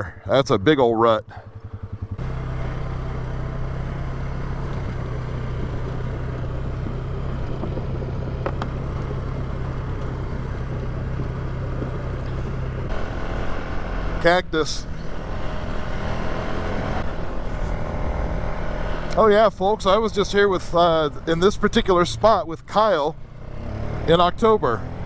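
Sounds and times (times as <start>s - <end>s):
atv engine running: 0.0s - 25.0s
tyre and chassis rattling: 1.2s - 25.0s.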